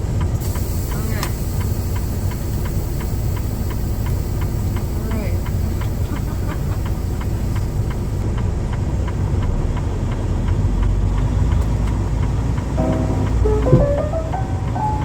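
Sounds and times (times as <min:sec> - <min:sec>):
truck engine and road rumble: 0:00.0 - 0:15.0
steady light ticking: 0:00.2 - 0:09.2.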